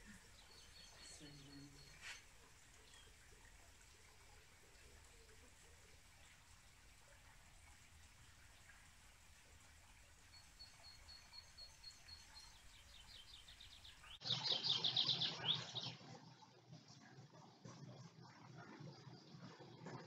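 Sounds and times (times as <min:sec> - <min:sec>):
songbird singing: 0:00.0 - 0:03.3, 0:10.2 - 0:16.0.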